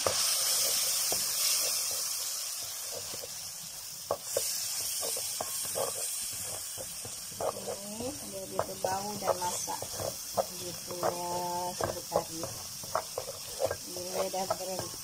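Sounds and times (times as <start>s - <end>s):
spice paste sizzling in hot oil: 0.0s - 15.0s
spatula scraping and tapping pan: 4.1s - 15.0s.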